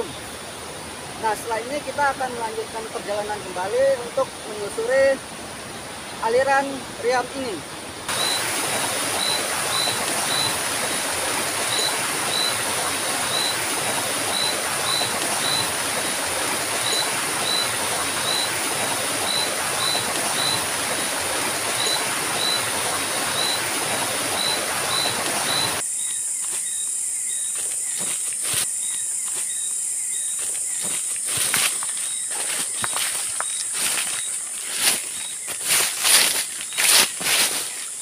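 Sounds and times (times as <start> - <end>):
high hiss: 3.7 - 38.0
river rapids rushing: 6.2 - 25.8.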